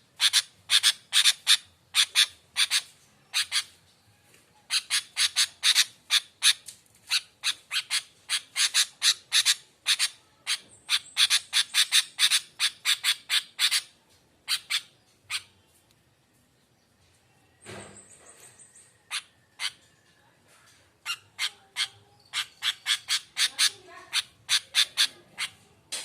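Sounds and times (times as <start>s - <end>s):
bird chattering calls: 0.2s - 3.8s, 4.7s - 15.6s, 19.0s - 20.0s, 21.0s - 25.7s.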